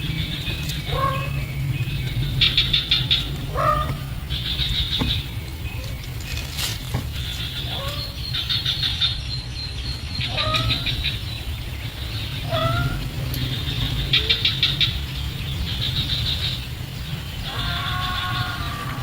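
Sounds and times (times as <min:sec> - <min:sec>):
steady low rumble: 0:00.0 - 0:19.0
high-pitched bird chittering: 0:07.1 - 0:16.6.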